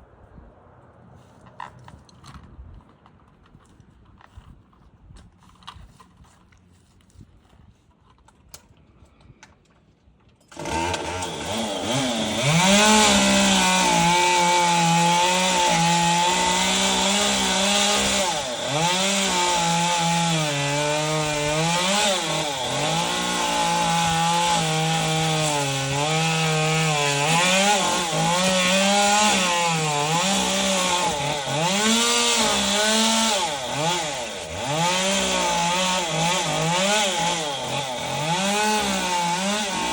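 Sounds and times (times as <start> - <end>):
chainsaw engine running at high revs: 10.5 - 39.9.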